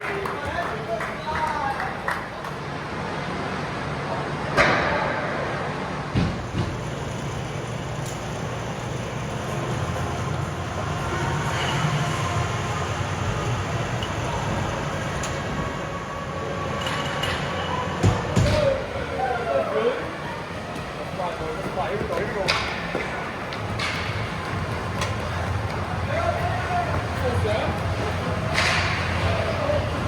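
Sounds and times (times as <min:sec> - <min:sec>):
hockey arena rumble: 0:00.0 - 0:30.0.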